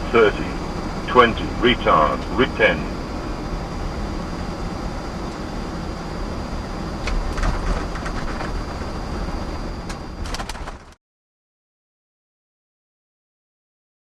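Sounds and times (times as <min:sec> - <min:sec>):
aircraft engine rumble: 0:00.0 - 0:11.0
rattling clicks: 0:07.0 - 0:09.1, 0:09.8 - 0:11.0.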